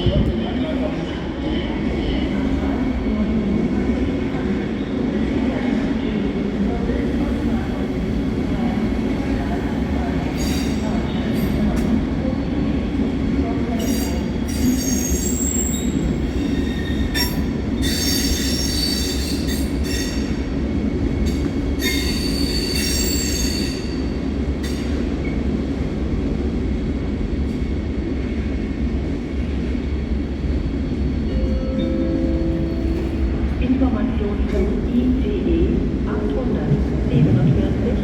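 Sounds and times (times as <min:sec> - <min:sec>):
train rumbling: 0:00.0 - 0:38.0
train wheels squealing: 0:10.3 - 0:10.9, 0:13.8 - 0:20.4, 0:21.8 - 0:25.4.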